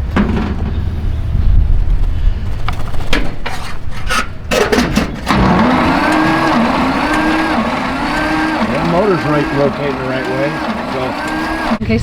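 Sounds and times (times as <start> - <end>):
clicks and scrapes: 2.7 - 8.7
starter motor cranking engine: 4.4 - 12.0.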